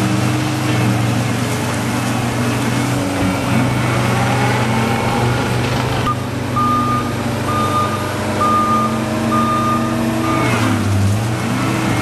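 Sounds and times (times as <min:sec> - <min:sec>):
diesel engine running: 0:00.0 - 0:12.0
backup alarm beeping: 0:06.1 - 0:10.5.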